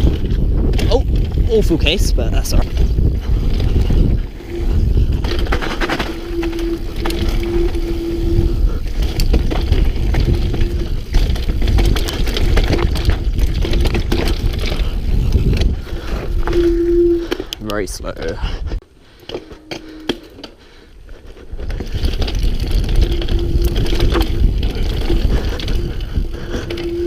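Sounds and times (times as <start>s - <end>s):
wind and tyres rumbling: 0.0s - 27.0s
bike clattering over bumps: 2.6s - 16.6s, 19.2s - 27.0s
steady low hum: 2.9s - 12.6s.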